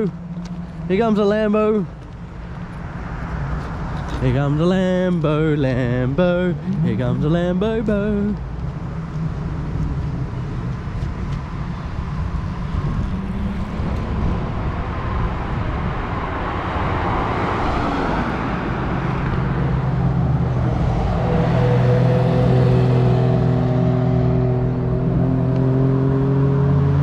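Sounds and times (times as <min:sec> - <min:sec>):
cars driving past: 0:01.8 - 0:27.0
car engine low steady note: 0:04.2 - 0:16.5.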